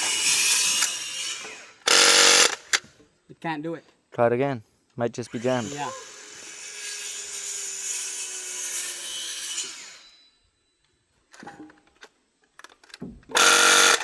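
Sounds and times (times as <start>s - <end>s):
nail gun motor whirring: 0.0s - 2.8s, 13.4s - 14.0s.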